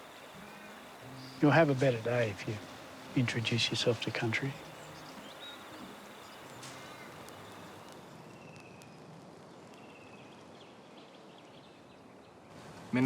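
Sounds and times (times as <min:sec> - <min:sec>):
high trills: 0:00.0 - 0:07.8
low even hiss: 0:00.0 - 0:13.0.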